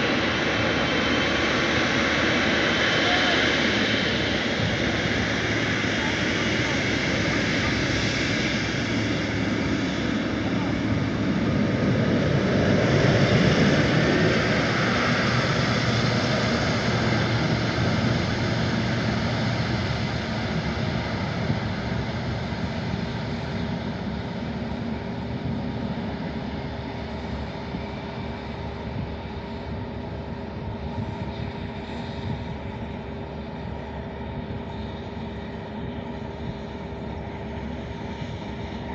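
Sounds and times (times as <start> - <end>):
jet engines passing: 0.0 - 38.9.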